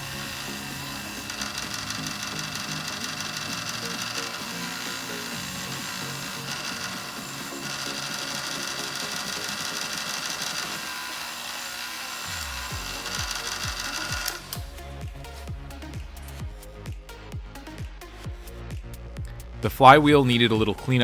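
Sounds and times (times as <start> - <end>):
small power tool whirring: 0.0 - 14.8
background music: 0.0 - 21.0.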